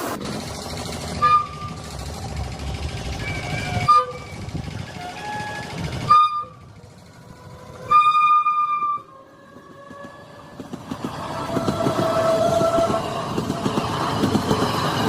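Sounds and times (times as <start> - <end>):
train rumble approaching: 0.0 - 15.0
train horn blasts: 3.2 - 6.7, 7.7 - 9.3.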